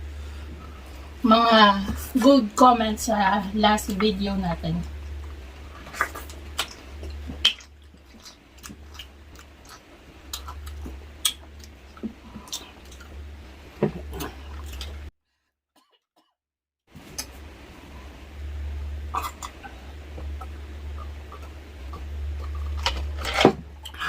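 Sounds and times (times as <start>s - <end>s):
steady low hum: 0.0s - 15.1s, 16.9s - 24.0s
person chewing: 4.9s - 15.1s, 19.1s - 24.0s
wet mouth smacks: 5.8s - 11.7s.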